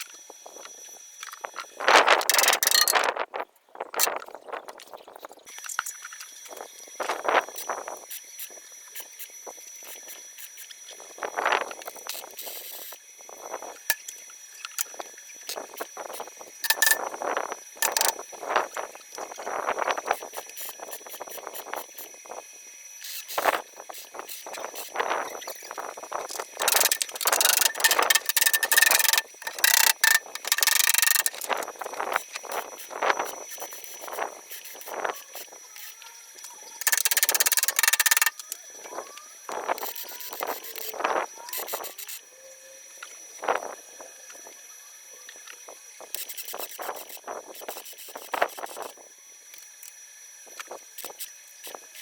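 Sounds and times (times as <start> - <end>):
knocks clicks and scraping: 2.0 - 3.1, 16.6 - 17.1, 17.8 - 18.2, 26.3 - 31.7, 36.8 - 38.4
loud rasping noise: 2.1 - 3.0, 16.6 - 17.1, 17.8 - 18.2, 26.4 - 31.7, 36.7 - 38.4.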